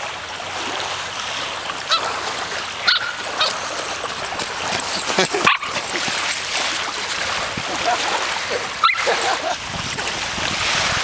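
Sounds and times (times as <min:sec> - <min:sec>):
small waves washing on shore: 0:00.0 - 0:11.0
dog barking and whining: 0:08.5 - 0:09.6.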